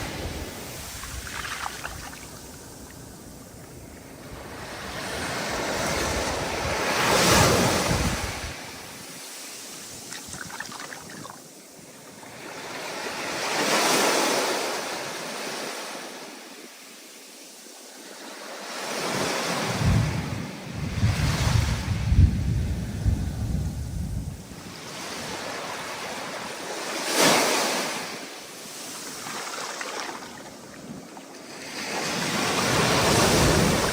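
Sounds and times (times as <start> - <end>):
wind rumbling on microphone: 0.0 - 9.1, 19.6 - 26.2, 32.0 - 33.9
ocean waves breaking: 0.0 - 11.5, 24.6 - 33.9.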